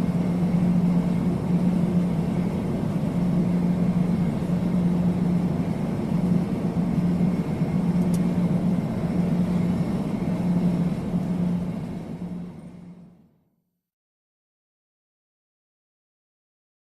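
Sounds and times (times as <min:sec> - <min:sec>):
airplane engine drone: 0:00.0 - 0:13.5.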